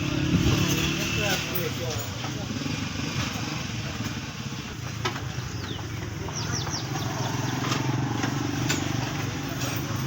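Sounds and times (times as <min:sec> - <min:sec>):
motorcycle engine idling: 0:02.2 - 0:10.0
bird chirps: 0:05.4 - 0:07.6.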